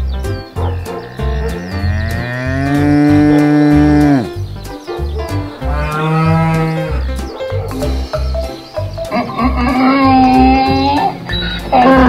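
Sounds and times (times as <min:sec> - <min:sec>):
background music with steady beat: 0:00.0 - 0:12.0
cow mooing: 0:01.0 - 0:04.4, 0:05.6 - 0:07.0, 0:09.1 - 0:11.2.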